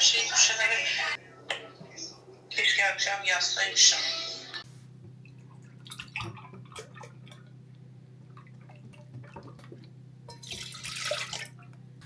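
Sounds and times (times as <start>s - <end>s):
steady low hum: 4.6s - 12.0s.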